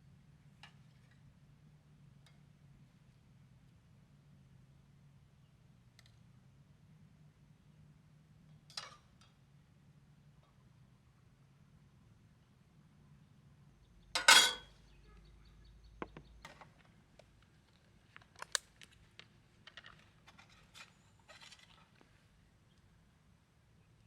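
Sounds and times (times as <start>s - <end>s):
metallic cookware clatter: 14.2s - 14.7s
utensils clinking: 14.2s - 14.7s.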